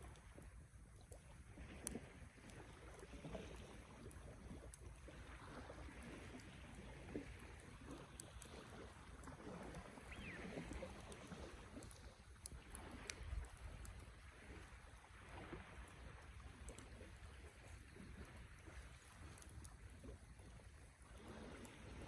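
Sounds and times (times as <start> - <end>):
campfire flames fluttering: 0.0 - 22.0.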